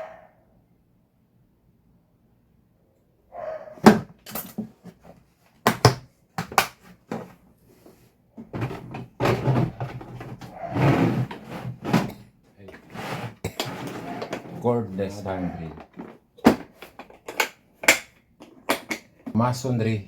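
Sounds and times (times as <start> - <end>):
tools knocking and clacking: 3.8 - 5.0, 15.8 - 19.4
tools rattling and rustling: 3.8 - 7.4, 8.4 - 19.4.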